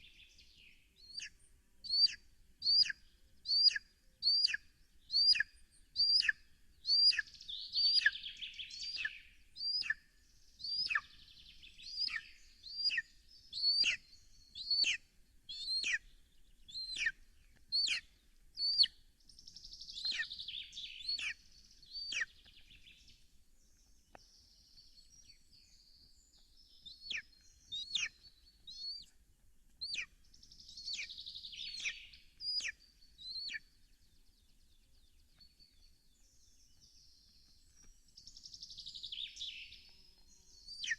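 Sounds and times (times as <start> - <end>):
high warbling birdsong: 0.0 - 40.9
sharp downward-sweeping bird call: 11.9 - 14.0.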